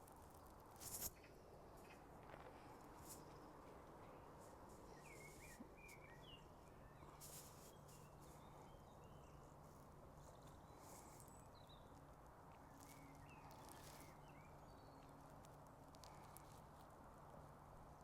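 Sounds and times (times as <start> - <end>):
background hiss: 0.0 - 18.0
small birds chirping: 2.6 - 16.8.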